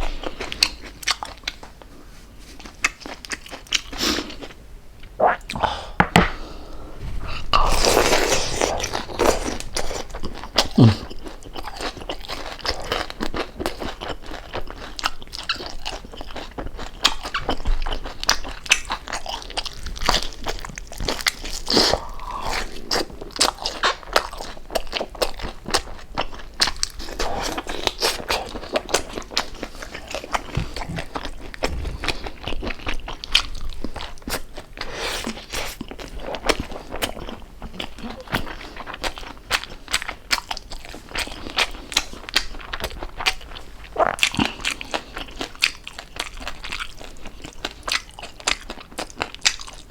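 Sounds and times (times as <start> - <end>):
wet mouth sounds: 7.2 - 11.4.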